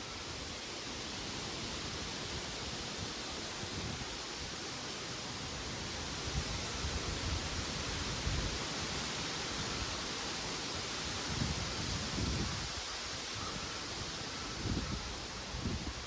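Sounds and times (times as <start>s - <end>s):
wind rustling leaves: 0.0s - 16.0s
wind rumbling on microphone: 5.8s - 16.0s.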